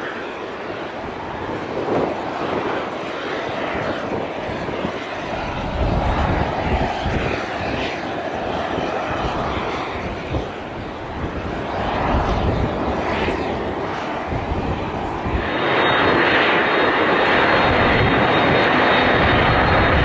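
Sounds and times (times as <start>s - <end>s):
airliner engine roar: 0.0s - 20.0s
wind buffeting microphone: 0.2s - 20.0s.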